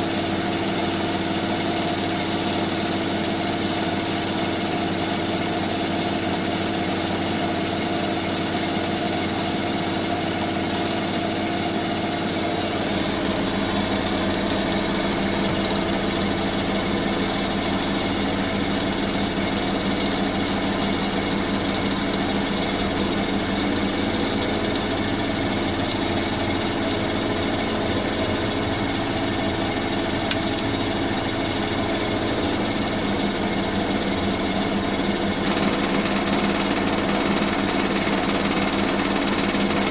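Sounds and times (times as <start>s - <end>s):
washing machine running: 0.0s - 39.9s
deep low hum: 12.8s - 35.4s.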